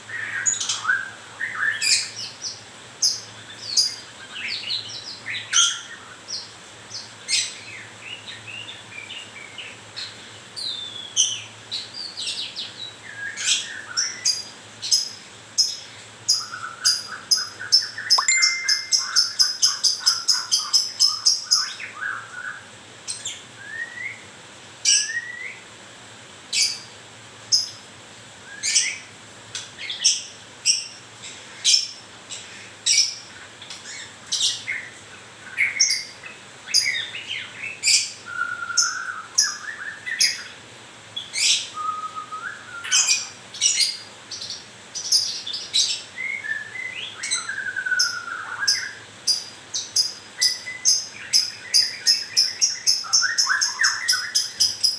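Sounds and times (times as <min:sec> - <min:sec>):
bird whistling: 0:18.0 - 0:20.2, 0:46.3 - 0:49.0, 0:50.4 - 0:54.9
bird chipping: 0:18.1 - 0:21.2, 0:48.0 - 0:54.9.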